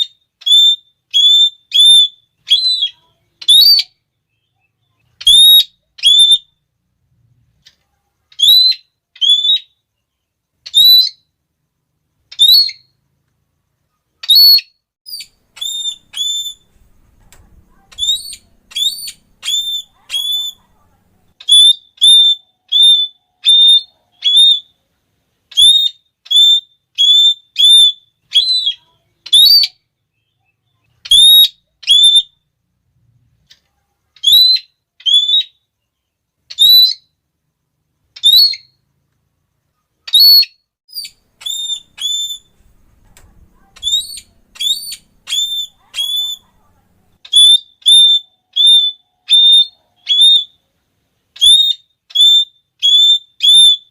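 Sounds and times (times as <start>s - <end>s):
parrot shrill calls: 0.0s - 4.0s, 5.2s - 6.5s, 8.3s - 9.8s, 10.6s - 11.3s, 12.3s - 12.9s, 14.2s - 17.0s, 17.6s - 20.7s, 21.4s - 24.7s, 25.5s - 29.8s, 31.0s - 32.4s, 34.2s - 35.6s, 36.5s - 37.2s, 38.2s - 38.8s, 40.1s - 42.7s, 43.5s - 46.6s, 47.2s - 50.6s, 51.4s - 53.9s.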